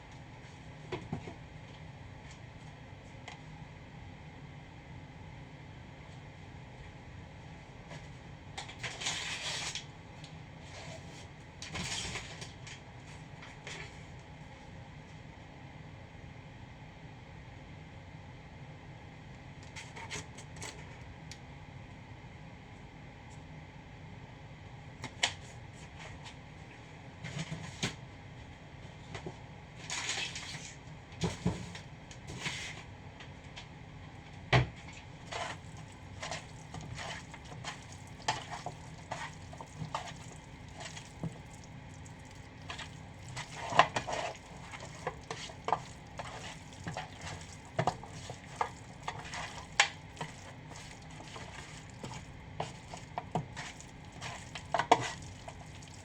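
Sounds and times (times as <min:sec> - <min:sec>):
utensil scraping a frying pan: 0:35.2 - 0:56.0
faint sizzle: 0:35.3 - 0:56.0.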